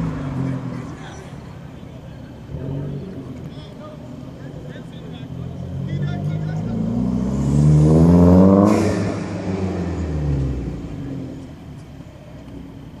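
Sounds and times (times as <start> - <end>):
car accelerating past: 4.4 - 12.8.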